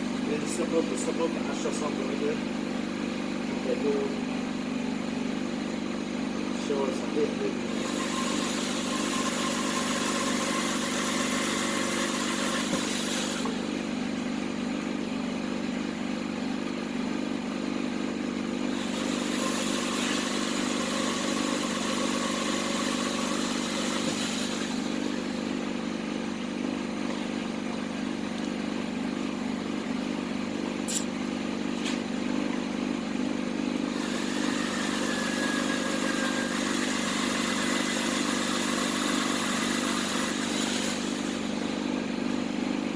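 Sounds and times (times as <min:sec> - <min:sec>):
motor running: 0:00.0 - 0:42.9
sharp click: 0:30.9 - 0:31.2.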